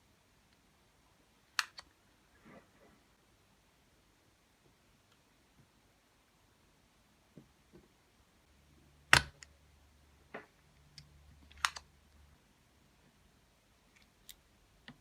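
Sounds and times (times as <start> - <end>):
plastic keyboard parts clicking: 11.5 - 11.9.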